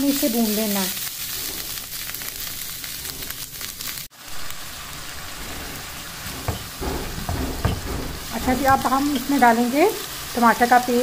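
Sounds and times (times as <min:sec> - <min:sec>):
mince sizzling in a pan: 0:00.0 - 0:11.0
soft knocks: 0:06.3 - 0:09.3.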